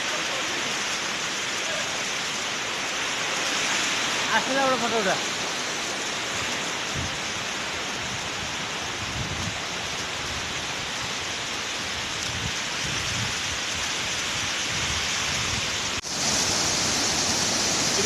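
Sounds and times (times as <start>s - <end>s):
waterfall rushing: 0.0s - 8.0s, 15.8s - 18.0s.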